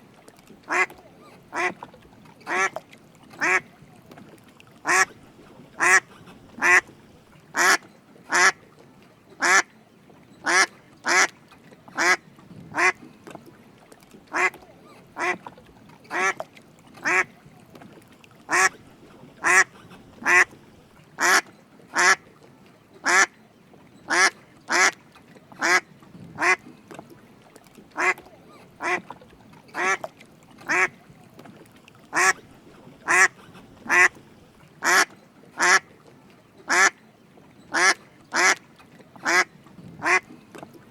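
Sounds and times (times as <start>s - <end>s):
mallard duck quacking: 0.7s - 1.8s, 2.5s - 2.8s, 3.4s - 3.7s, 4.8s - 8.6s, 9.4s - 9.7s, 10.4s - 11.3s, 12.0s - 13.0s, 14.3s - 14.6s, 15.2s - 15.5s, 16.1s - 16.4s, 17.0s - 17.3s, 18.5s - 18.8s, 19.4s - 20.6s, 21.2s - 22.2s, 23.0s - 23.3s, 24.1s - 25.0s, 25.6s - 25.8s, 26.4s - 26.6s, 28.0s - 29.1s, 29.7s - 31.0s, 32.1s - 34.2s, 34.8s - 35.9s, 36.7s - 37.0s, 37.7s - 38.6s, 39.2s - 40.3s.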